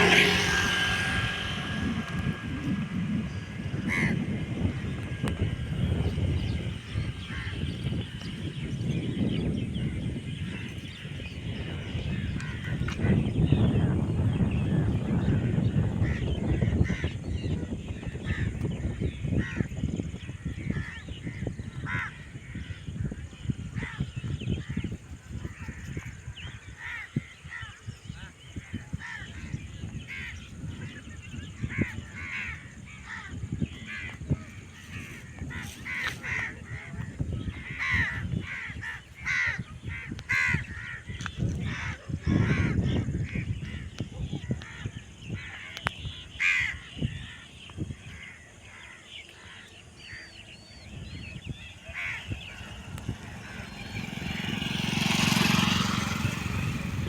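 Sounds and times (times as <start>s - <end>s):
river flowing rumble: 0.0s - 17.0s, 49.8s - 57.0s
crows cawing: 3.8s - 4.9s, 21.8s - 22.3s, 31.7s - 43.8s, 44.5s - 50.8s, 51.4s - 56.9s.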